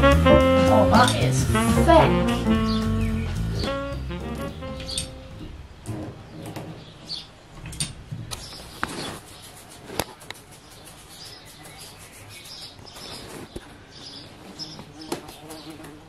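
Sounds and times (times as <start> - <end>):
small birds chirping: 1.0 - 16.0
sharp clicks and knocks: 7.5 - 9.0.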